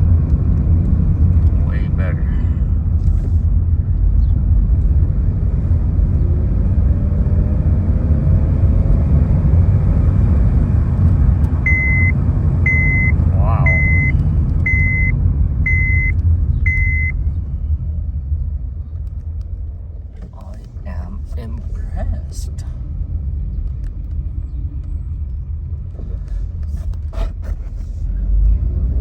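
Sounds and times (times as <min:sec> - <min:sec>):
car engine and road rumble: 0:00.0 - 0:29.0
electronic beeps: 0:11.6 - 0:17.2.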